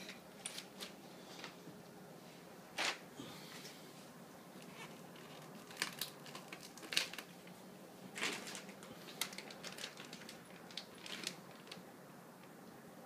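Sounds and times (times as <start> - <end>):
packaging rustling: 4.6 - 11.9.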